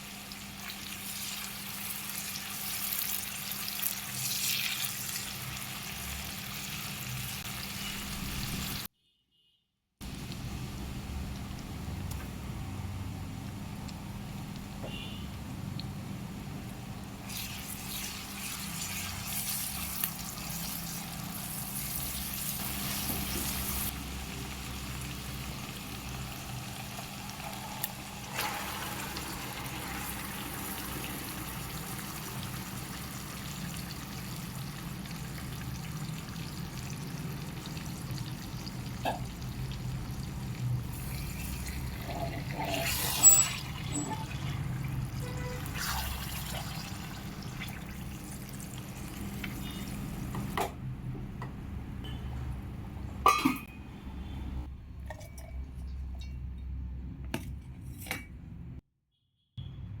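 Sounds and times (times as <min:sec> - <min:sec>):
water running: 0:37.8 - 0:50.5.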